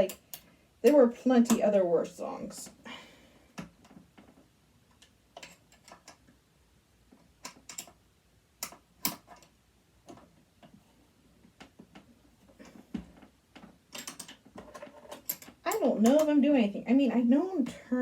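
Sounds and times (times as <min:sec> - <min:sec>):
hand tools clicking and tapping: 0:00.0 - 0:01.7, 0:03.6 - 0:06.3, 0:07.2 - 0:08.0, 0:08.6 - 0:10.8, 0:11.5 - 0:16.4.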